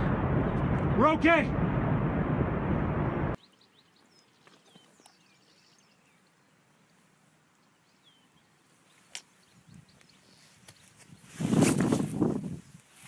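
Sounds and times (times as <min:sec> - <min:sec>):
outdoor background hiss: 0:03.3 - 0:11.1
birds chirping: 0:03.4 - 0:11.4.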